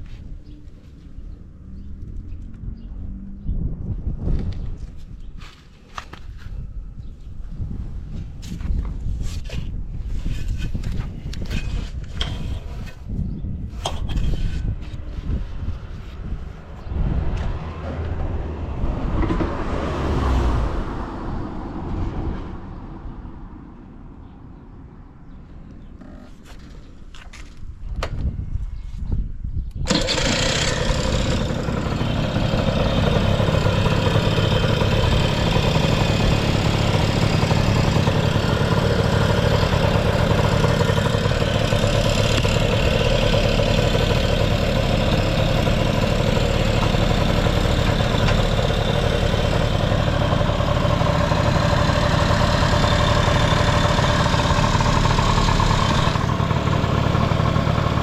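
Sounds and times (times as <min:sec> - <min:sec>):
scooter engine starting and idling: 0:29.7 - 0:58.0.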